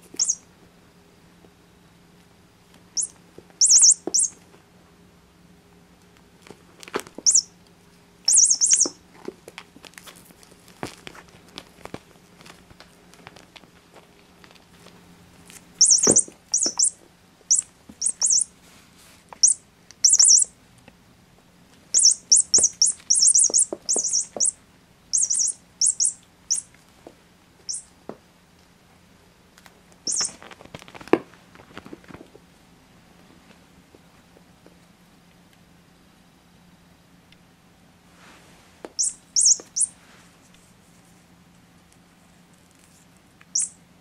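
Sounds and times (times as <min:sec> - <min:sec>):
toy bird chirping: 0:00.2 - 0:00.4, 0:03.0 - 0:04.4, 0:07.2 - 0:07.5, 0:08.3 - 0:09.0, 0:15.8 - 0:18.5, 0:19.4 - 0:20.5, 0:21.9 - 0:26.7, 0:27.6 - 0:27.9, 0:30.1 - 0:30.4, 0:39.0 - 0:40.0, 0:43.5 - 0:43.8.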